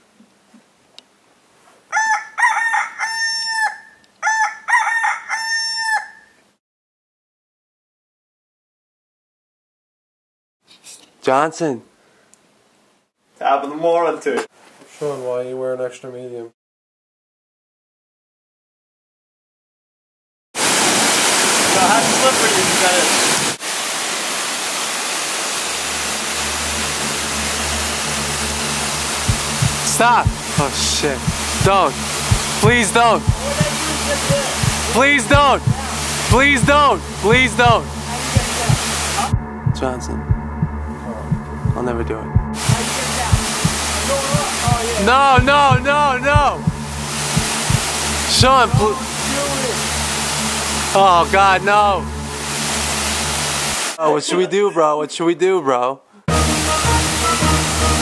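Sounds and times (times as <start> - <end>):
rooster crowing: 1.9 - 6.4
waterfall roaring: 20.6 - 39.4, 42.6 - 54.0
low steady hum: 25.8 - 53.8.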